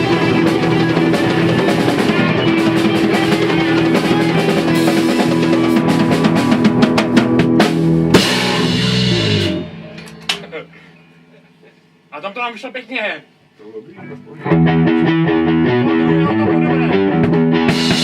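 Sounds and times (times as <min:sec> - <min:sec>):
drum kit: 0:00.0 - 0:10.9, 0:14.5 - 0:18.0
bass guitar: 0:00.0 - 0:11.3, 0:14.0 - 0:18.0
electric guitar: 0:00.0 - 0:11.6, 0:14.0 - 0:18.0.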